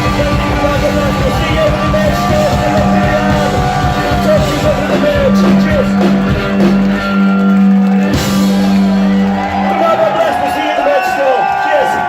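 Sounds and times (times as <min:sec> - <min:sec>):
drum hits: 0:00.0 - 0:07.2
live rock band with singing: 0:00.0 - 0:09.8.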